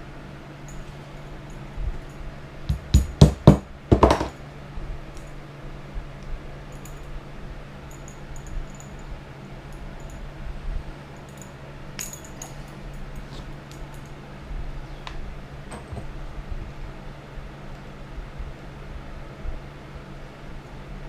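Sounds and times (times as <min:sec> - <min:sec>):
steady low hum: 0:00.0 - 0:21.0
sharp knocks: 0:02.7 - 0:04.4.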